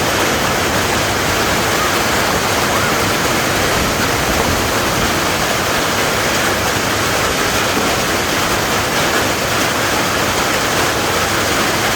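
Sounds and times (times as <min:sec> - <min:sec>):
heavy hail falling: 0:00.0 - 0:11.9.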